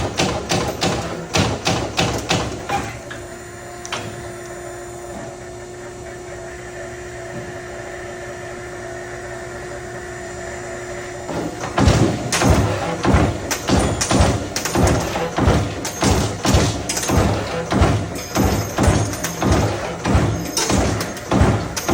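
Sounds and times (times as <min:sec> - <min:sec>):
punch machine humming: 0:00.0 - 0:21.9
sharp punching thuds: 0:11.8 - 0:21.9.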